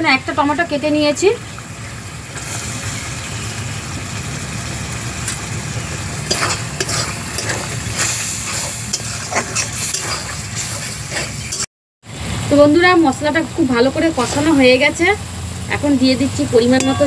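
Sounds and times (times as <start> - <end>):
food sizzling in a pan: 0.5 - 11.7, 13.3 - 17.0
metal spoon scraping a pan: 6.3 - 11.7.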